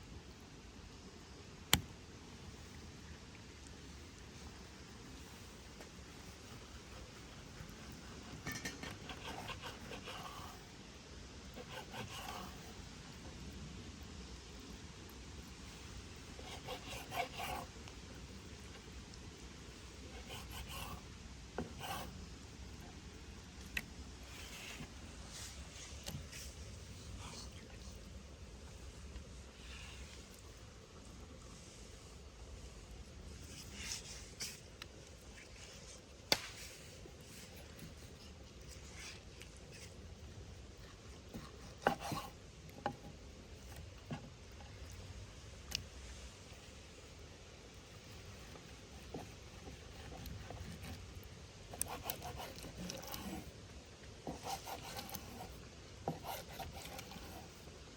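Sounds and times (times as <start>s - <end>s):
rubbing and scraping: 16.4s - 17.7s, 20.1s - 21.0s, 40.8s - 44.2s, 48.0s - 53.6s, 54.2s - 57.7s.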